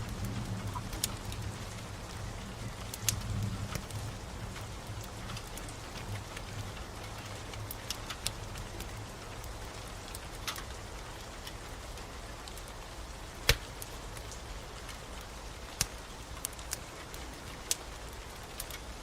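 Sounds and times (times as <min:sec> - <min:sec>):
steady rain: 0:00.0 - 0:19.0
wood fire crackling: 0:00.0 - 0:19.0.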